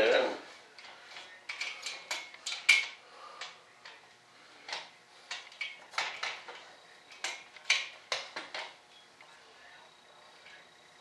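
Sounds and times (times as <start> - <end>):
metal parts clicking and clanking: 0.8 - 4.0, 4.7 - 8.8.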